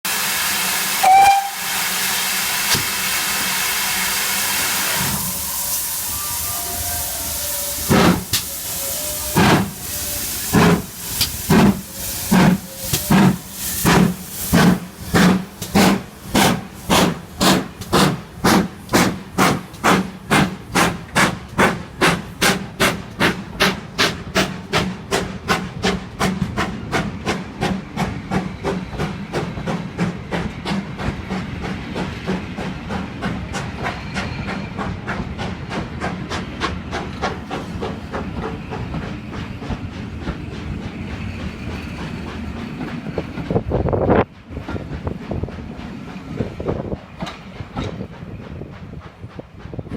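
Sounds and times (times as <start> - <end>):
steam locomotive exhaust chuffing: 0.1 - 49.9.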